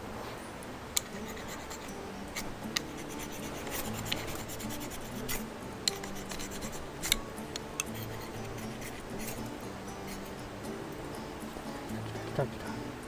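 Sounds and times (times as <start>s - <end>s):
twigs scratching and rubbing: 1.0s - 9.5s.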